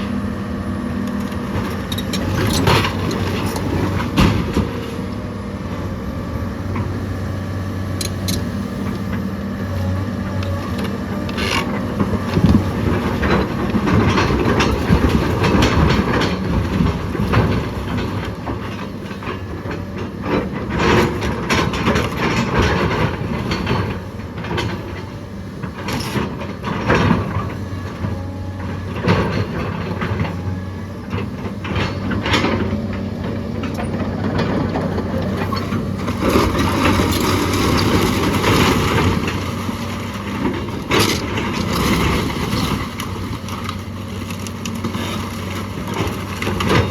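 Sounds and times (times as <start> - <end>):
heavy machine engine running: 0.0 - 46.9
wood and debris cracking: 34.4 - 46.9.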